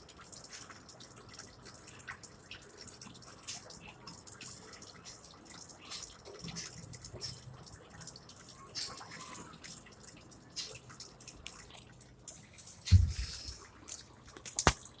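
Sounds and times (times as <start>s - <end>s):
water dripping and splashing: 0.0s - 15.0s
heavy low thump: 12.9s - 13.4s
sharp click: 14.5s - 14.8s.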